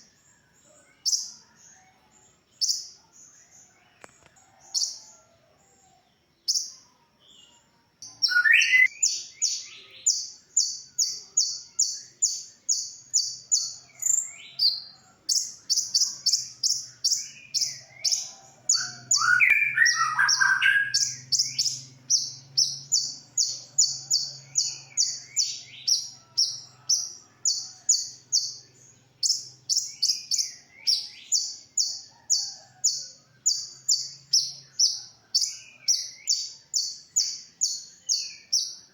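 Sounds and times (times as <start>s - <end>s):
bird twittering: 8.0s - 38.8s
sunbird singing high notes: 8.1s - 10.2s.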